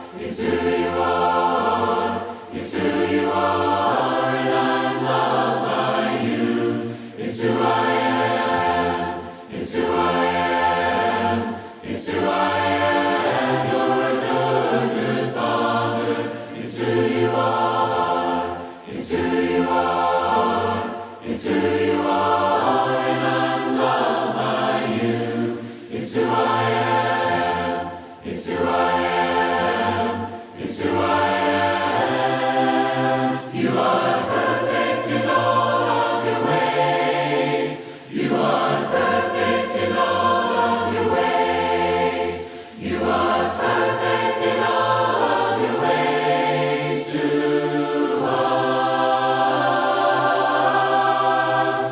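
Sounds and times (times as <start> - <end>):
choir singing a cappella: 0.0 - 51.9.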